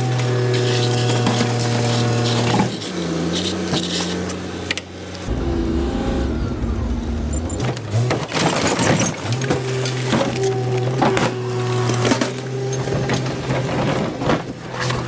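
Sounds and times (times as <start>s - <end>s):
garbage truck engine revving: 5.3s - 8.7s.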